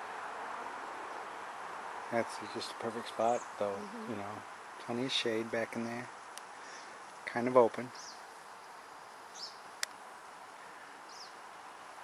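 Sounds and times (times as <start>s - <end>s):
steady outdoor hiss: 0.0s - 12.0s
small bird chirping: 7.9s - 9.6s, 11.1s - 11.4s.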